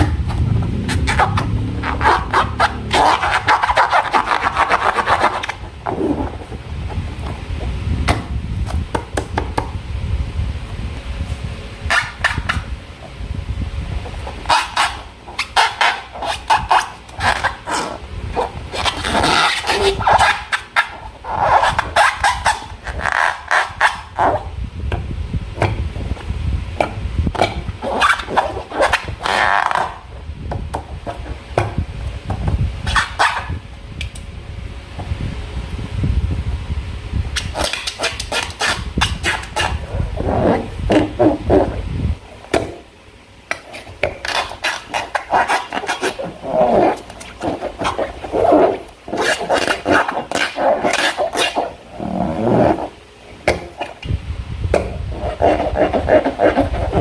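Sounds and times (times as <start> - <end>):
low handling rumble: 0.0 - 9.0, 33.5 - 37.4.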